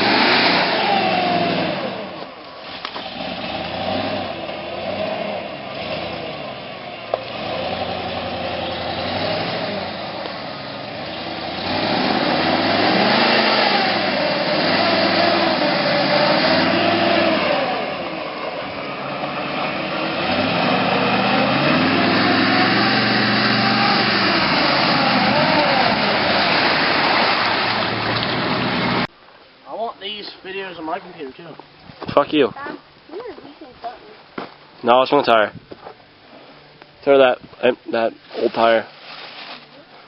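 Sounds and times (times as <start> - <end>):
engine revving: 0.0 - 29.1.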